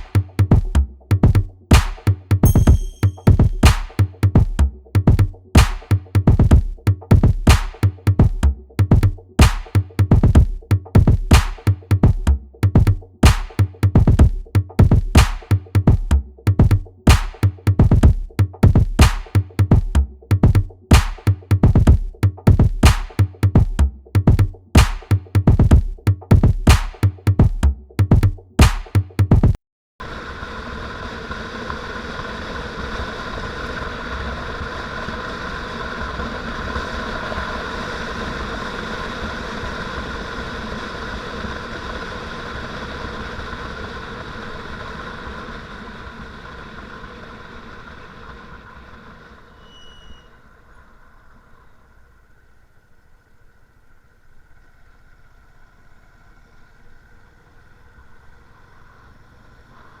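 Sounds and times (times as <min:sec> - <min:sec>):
motorcycle engine running: 0:00.0 - 0:28.4
high-pitched chirp: 0:02.4 - 0:03.6.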